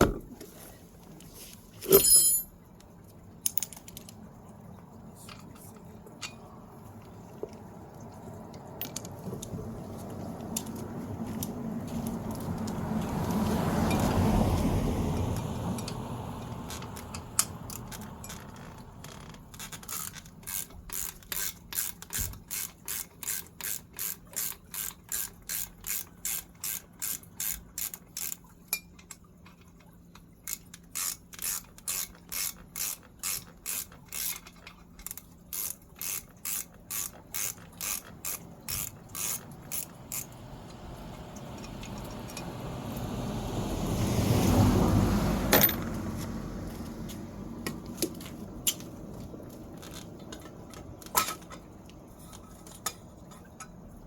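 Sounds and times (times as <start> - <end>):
ratchet clicking: 15.8 - 28.9, 30.5 - 42.6.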